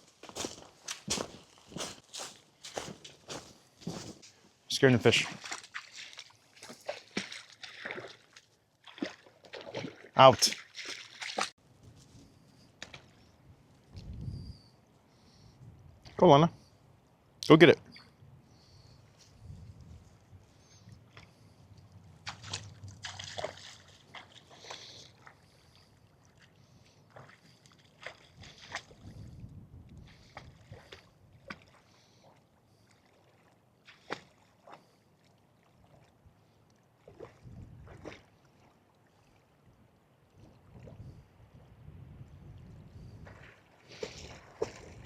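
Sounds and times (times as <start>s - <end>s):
dog splashing through water: 5.2s - 11.6s, 22.2s - 25.5s, 43.4s - 45.0s.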